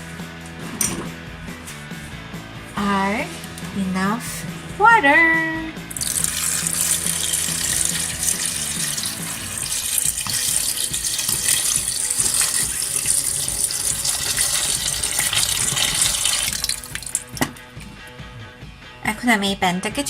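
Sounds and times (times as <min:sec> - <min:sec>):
water running into a pan: 0:05.9 - 0:17.9.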